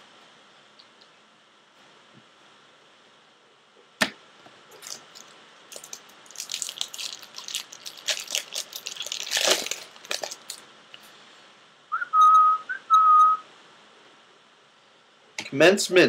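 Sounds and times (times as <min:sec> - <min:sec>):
wrapper tearing and crinkling: 0:04.7 - 0:10.6.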